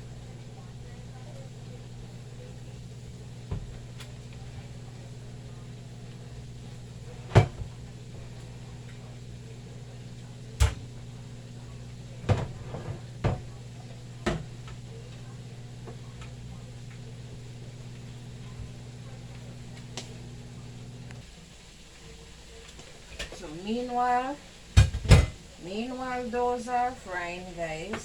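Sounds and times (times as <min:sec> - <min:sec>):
steady low hum: 0:00.0 - 0:22.5
kitchen knocks and clunks: 0:03.5 - 0:04.8, 0:07.0 - 0:09.0, 0:10.5 - 0:11.0, 0:12.2 - 0:14.9, 0:24.8 - 0:25.5.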